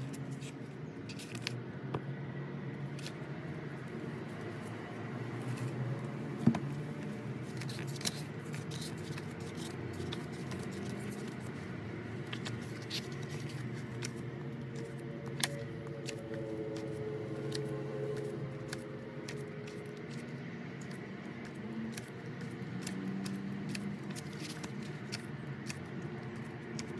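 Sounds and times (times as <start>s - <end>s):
plastic and card clicks and taps: 6.4s - 11.6s, 12.2s - 26.9s.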